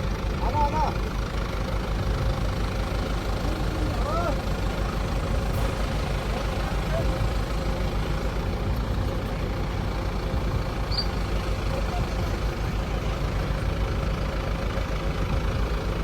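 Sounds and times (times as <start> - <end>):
diesel engine rumbling: 0.0 - 16.0
high chirp: 10.8 - 11.4.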